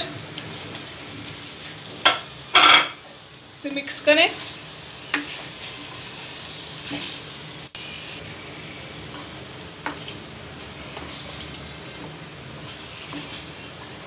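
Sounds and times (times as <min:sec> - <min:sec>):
chicken sizzling in oil: 0:00.0 - 0:14.0
spatula scraping pan: 0:09.1 - 0:14.0.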